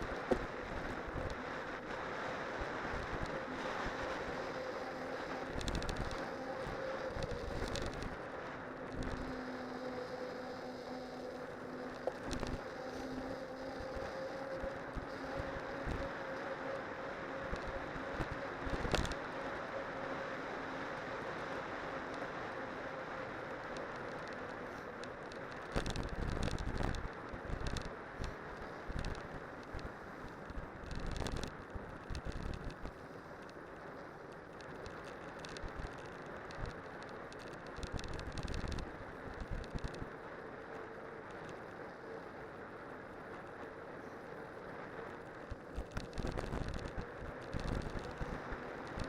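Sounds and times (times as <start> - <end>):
wind on microphone: 0.0 - 25.0, 25.6 - 33.2, 40.9 - 49.0
studded tyres rolling on road: 0.0 - 49.0
wind buffeting microphone: 25.6 - 33.0, 42.4 - 49.0.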